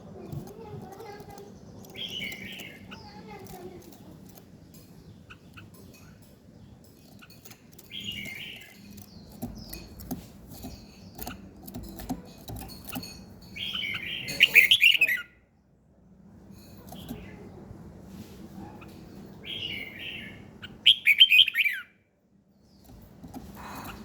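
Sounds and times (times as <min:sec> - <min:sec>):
songbird chirping and singing: 0:00.0 - 0:15.4, 0:19.4 - 0:22.0.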